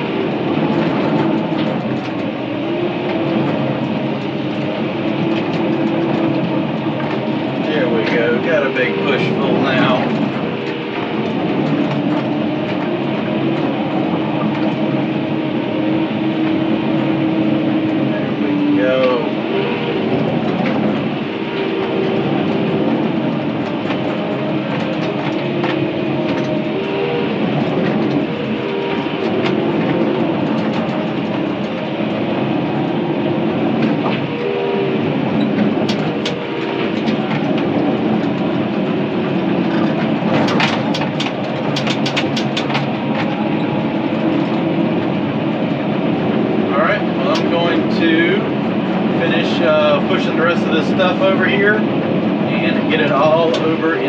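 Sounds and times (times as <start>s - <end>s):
bulldozer diesel engine under load: 0.0s - 54.0s
steel tracks clanking and squealing: 0.0s - 54.0s
sharp clacks: 18.9s - 32.9s, 35.3s - 46.4s.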